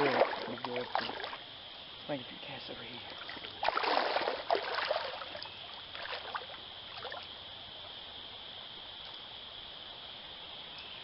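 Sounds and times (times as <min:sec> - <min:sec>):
water splashing in a creek: 0:00.0 - 0:08.8
high drone of insects: 0:00.0 - 0:11.0.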